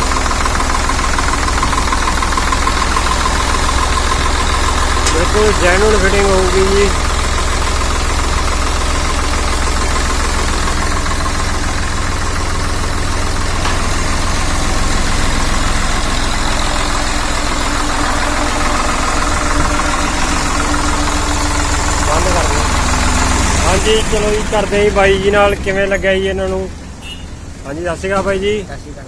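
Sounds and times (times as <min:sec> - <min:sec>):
tractor diesel engine idling: 0:00.0 - 0:29.0.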